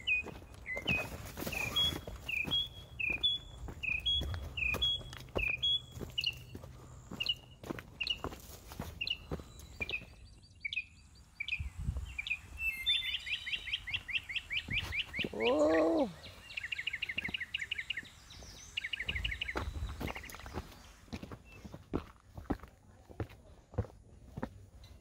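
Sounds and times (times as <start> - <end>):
footsteps crunching on dirt trail: 0.0 - 10.4, 11.8 - 15.6, 16.3 - 25.0
songbird chirping and trilling: 0.0 - 23.6
person humming: 15.2 - 16.2.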